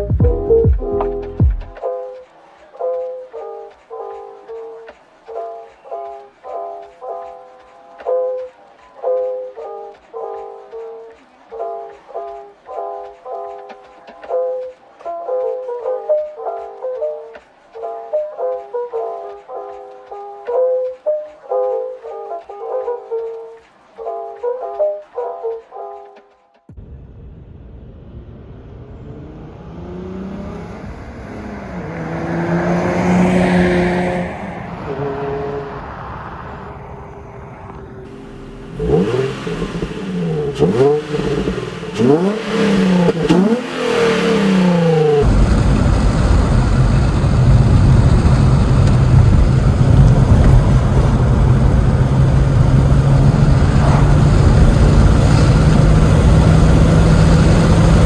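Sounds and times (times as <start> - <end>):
rush of noise: 26.8 - 58.0
loud engine drone: 27.2 - 58.0
car engine revving: 27.8 - 58.0.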